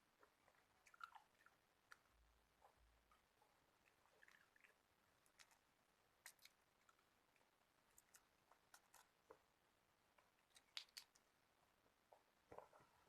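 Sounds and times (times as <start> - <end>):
person chewing and biting food: 0.2 - 2.0.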